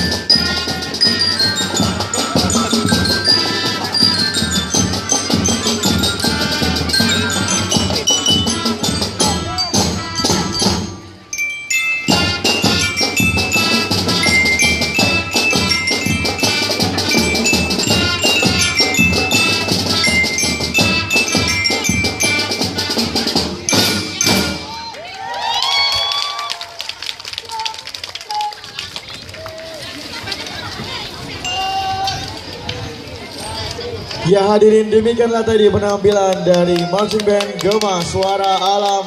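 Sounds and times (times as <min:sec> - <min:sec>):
mallet percussion ringing: 0:00.0 - 0:24.9, 0:31.4 - 0:32.0
marching band playing: 0:00.0 - 0:25.2
drums: 0:00.0 - 0:26.2.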